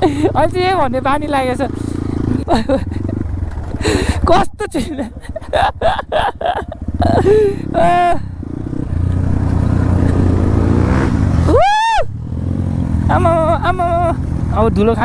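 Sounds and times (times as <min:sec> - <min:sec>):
dirt bike engine running: 0:00.0 - 0:15.0
person calling out: 0:13.1 - 0:14.7.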